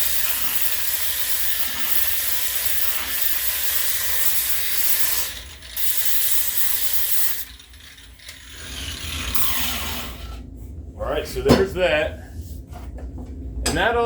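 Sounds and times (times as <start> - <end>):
angle grinder sanding wood: 0.0 - 10.4.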